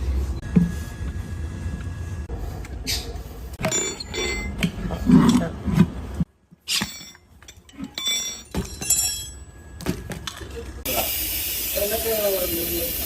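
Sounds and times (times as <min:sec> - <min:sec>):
metal tools clinking: 0:03.6 - 0:05.5, 0:06.6 - 0:10.6.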